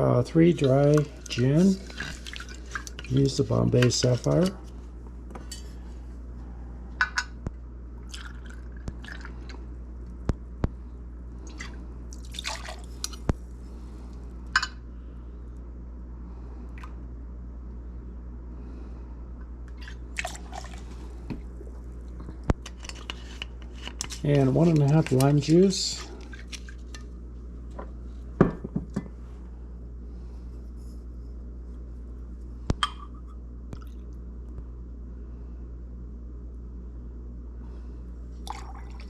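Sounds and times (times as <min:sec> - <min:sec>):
steady low hum: 0:00.0 - 0:39.0
liquid splashing and dripping: 0:11.5 - 0:13.2.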